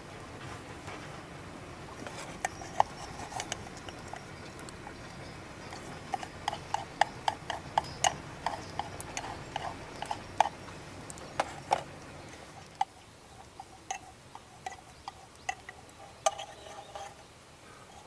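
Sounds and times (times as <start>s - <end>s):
sharp irregular clicks: 2.4s - 12.9s.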